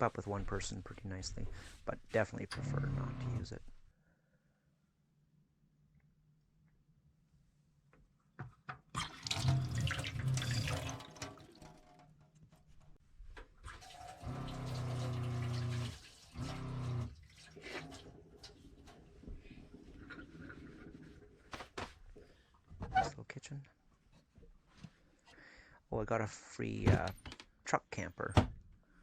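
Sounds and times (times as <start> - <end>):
tap water running into sink: 9.0 - 12.0, 13.7 - 19.1.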